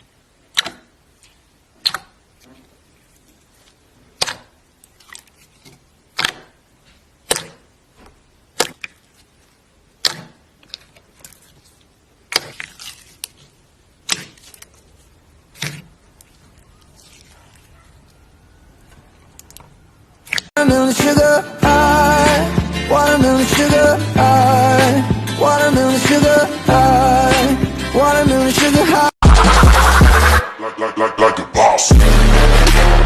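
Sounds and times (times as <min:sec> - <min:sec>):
music: 0:20.6 - 0:33.0.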